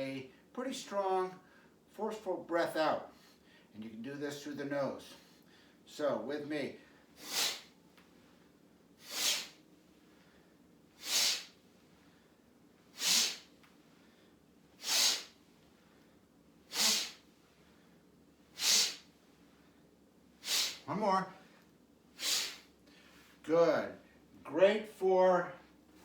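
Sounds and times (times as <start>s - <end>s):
person exhaling sharply: 7.2s - 7.7s, 9.0s - 9.6s, 11.0s - 11.6s, 12.9s - 13.5s, 14.8s - 15.4s, 16.7s - 17.3s, 18.6s - 19.1s, 20.4s - 21.6s, 22.2s - 23.2s.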